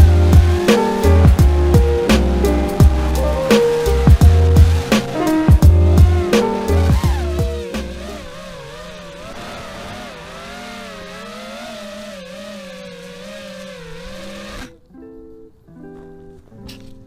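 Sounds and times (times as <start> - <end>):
music: 0.0 - 8.4, 14.5 - 17.0
quadcopter motors whining: 0.0 - 14.8.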